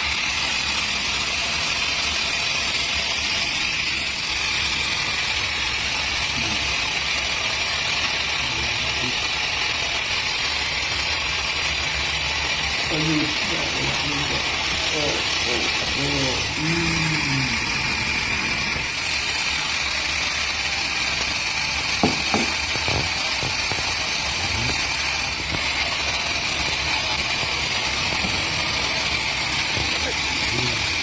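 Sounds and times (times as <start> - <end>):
chainsaw idling: 0.0 - 31.0
sharp knocks: 22.0 - 23.6.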